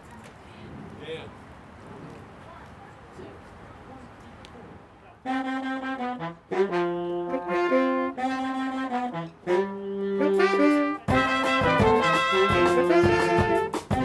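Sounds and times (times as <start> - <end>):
horn section playing: 5.2 - 14.0
drums: 10.4 - 14.0.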